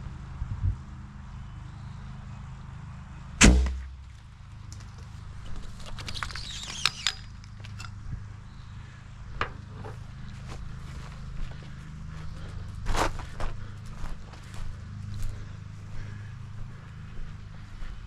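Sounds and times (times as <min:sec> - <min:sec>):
heavy sharp thump: 0:03.4 - 0:04.0.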